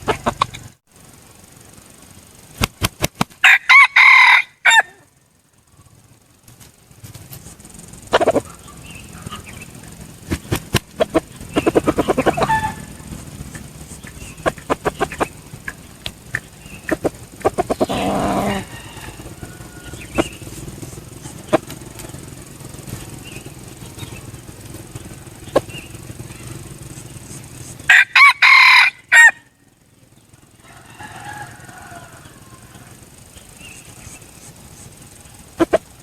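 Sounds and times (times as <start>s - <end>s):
sharp clicks: 2.0s - 3.4s, 6.4s - 27.9s
faint rooster call: 3.4s - 5.2s, 11.8s - 13.2s, 17.6s - 21.6s, 27.8s - 29.6s, 30.4s - 34.3s
rooster crowing: 3.4s - 5.2s, 11.0s - 23.4s, 27.2s - 29.6s, 30.4s - 34.2s.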